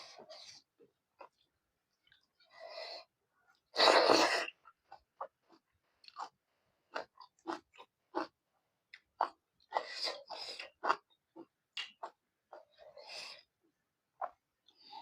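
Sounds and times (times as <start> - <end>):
wet chewing and lip smacks: 8.9 - 12.6.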